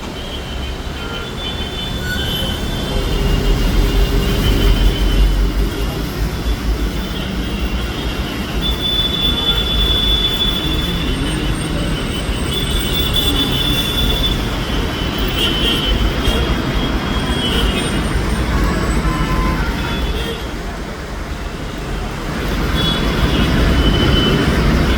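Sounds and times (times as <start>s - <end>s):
metallic squeal: 1.4s - 20.3s.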